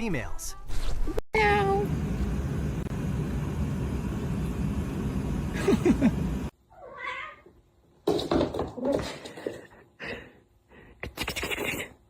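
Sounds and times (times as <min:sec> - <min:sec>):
steady outdoor noise: 0:01.7 - 0:06.5.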